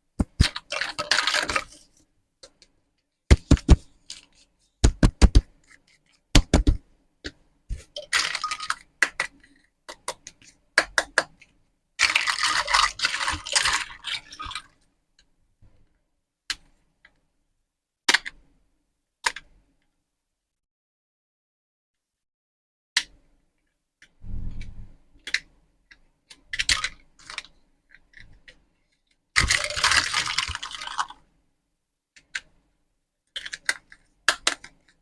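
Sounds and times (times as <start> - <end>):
plastic toys clicking: 25.2 - 28.6, 33.3 - 35.0.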